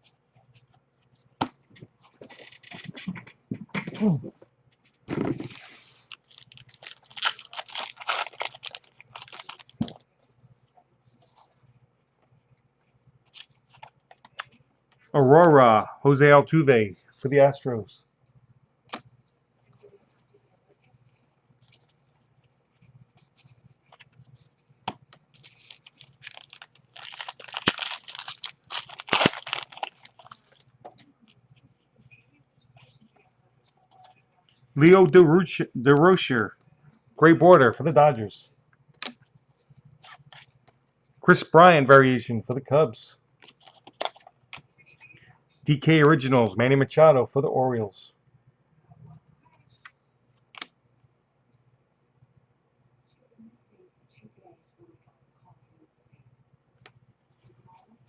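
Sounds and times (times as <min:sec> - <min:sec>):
card packs crinkling and rustling: 0:05.1 - 0:10.0, 0:25.3 - 0:31.0, 0:43.4 - 0:44.6.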